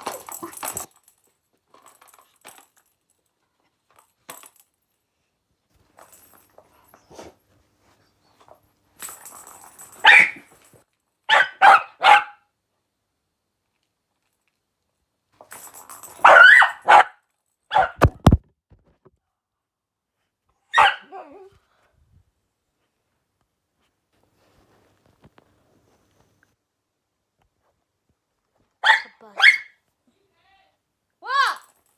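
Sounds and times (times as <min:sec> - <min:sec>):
dog barking: 0:10.0 - 0:10.5, 0:11.3 - 0:12.5, 0:16.2 - 0:18.1, 0:20.7 - 0:21.2, 0:28.8 - 0:29.8
sharp knocks: 0:18.0 - 0:18.4.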